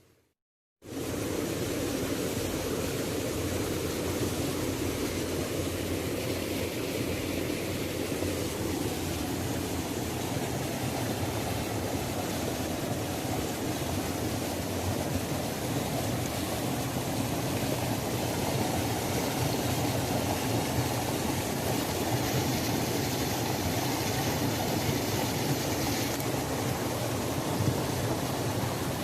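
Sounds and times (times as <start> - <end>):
waterfall rushing: 0.9 - 29.0.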